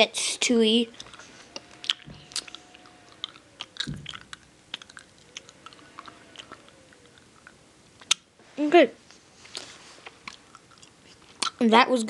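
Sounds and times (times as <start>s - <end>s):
person chewing candy: 1.0s - 8.3s, 9.4s - 11.6s
wet mouth smacking clicks: 7.4s - 8.2s, 10.2s - 11.6s.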